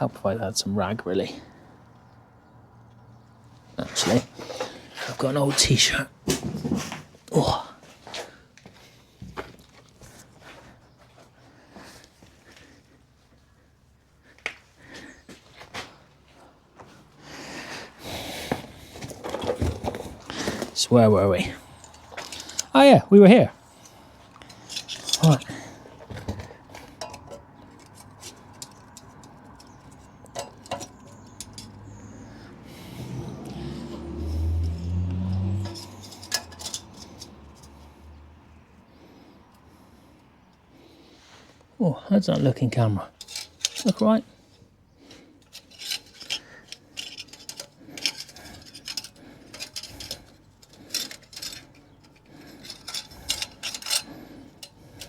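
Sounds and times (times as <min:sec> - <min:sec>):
metal tools clinking and clattering: 0:03.6 - 0:07.5, 0:18.6 - 0:22.8, 0:23.5 - 0:39.3, 0:42.7 - 0:55.0
light clicks and metallic taps: 0:23.8 - 0:32.1.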